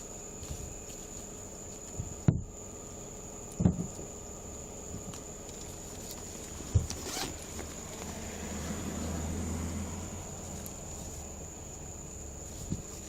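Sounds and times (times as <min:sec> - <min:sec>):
short rustle: 0:05.1 - 0:08.2, 0:10.4 - 0:13.0.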